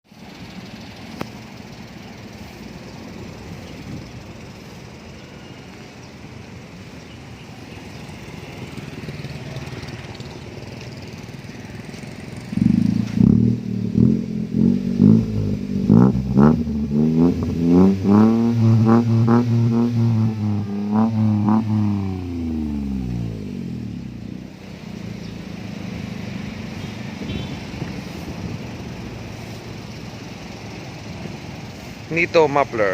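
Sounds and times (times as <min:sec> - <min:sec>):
car exhaust idling: 0:00.2 - 0:32.9
loud droning pitched sound: 0:12.5 - 0:26.8.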